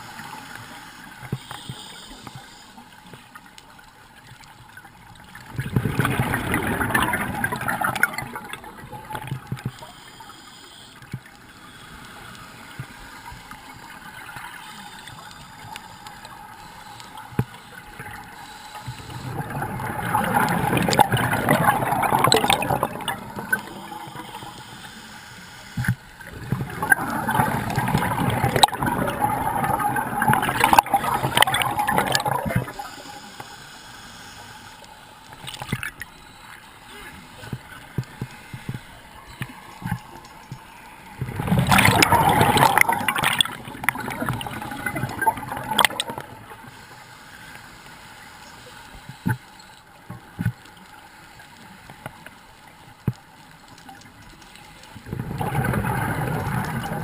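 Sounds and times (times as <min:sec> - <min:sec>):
underwater inhale: 0:00.0 - 0:02.9, 0:32.8 - 0:34.8
water hiss: 0:00.0 - 0:03.2, 0:05.8 - 0:49.8
regulator bubbles underwater: 0:03.0 - 0:10.3, 0:11.0 - 0:24.8, 0:25.7 - 0:33.4, 0:35.3 - 0:47.0, 0:48.5 - 0:57.0.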